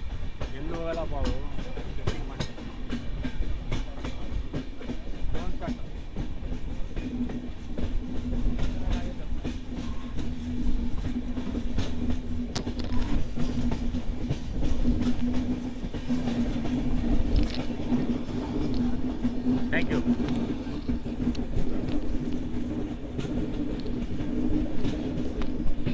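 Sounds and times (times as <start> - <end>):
train rumbling along track: 0.0 - 25.9
wheels clicking on rails: 0.0 - 25.9.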